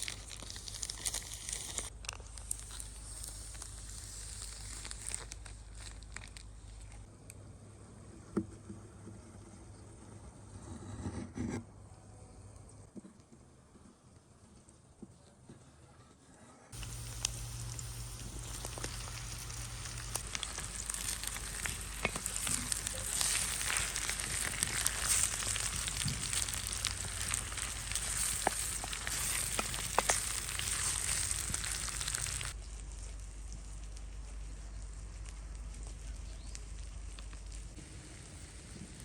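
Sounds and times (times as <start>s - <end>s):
food sizzling in oil: 0.0s - 1.9s, 16.8s - 32.6s.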